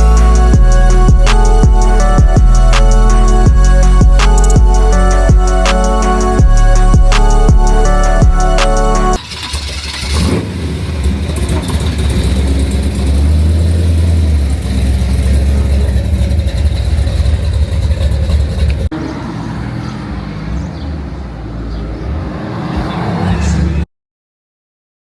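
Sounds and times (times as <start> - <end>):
car engine running: 0.0 - 18.9.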